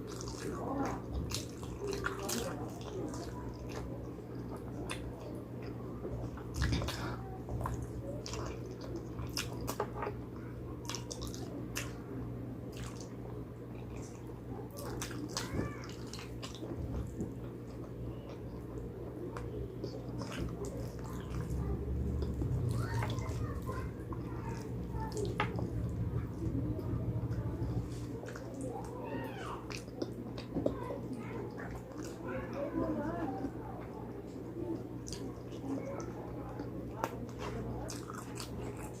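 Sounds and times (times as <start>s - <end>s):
chewing and wet lip-smacking: 0.0s - 39.0s
steady low hum: 0.0s - 39.0s.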